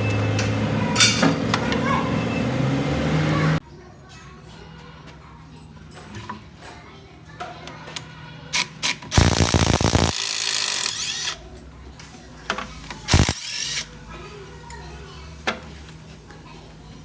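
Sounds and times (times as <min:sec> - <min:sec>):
power tool rapid hammering: 0:09.1 - 0:11.4, 0:13.1 - 0:13.8
hissing: 0:09.2 - 0:10.2, 0:13.1 - 0:13.4.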